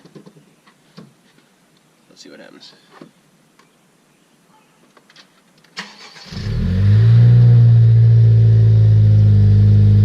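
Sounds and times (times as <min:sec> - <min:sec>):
car engine starting and idling: 0:05.8 - 0:10.0.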